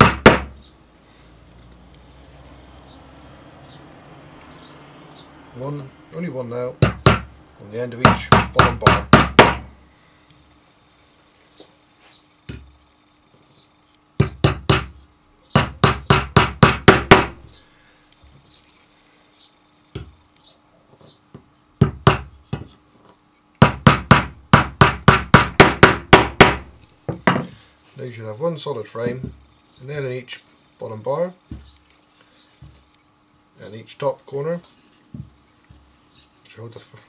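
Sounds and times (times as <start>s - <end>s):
hammer tapping nails into wood: 0.0s - 0.6s, 6.8s - 7.3s, 8.0s - 9.7s, 14.2s - 14.9s, 15.5s - 17.4s, 21.8s - 22.8s, 23.6s - 27.5s.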